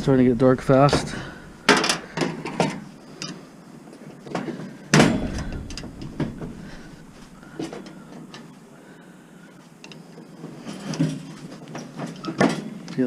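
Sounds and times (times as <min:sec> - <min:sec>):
metal knocks and clanks: 0:00.0 - 0:03.4, 0:04.4 - 0:08.4.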